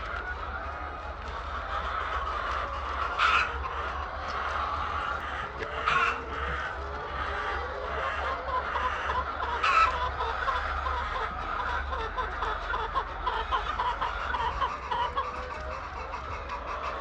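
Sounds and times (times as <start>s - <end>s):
chicken squawk: 0.0s - 17.0s
chickens clucking: 0.0s - 17.0s.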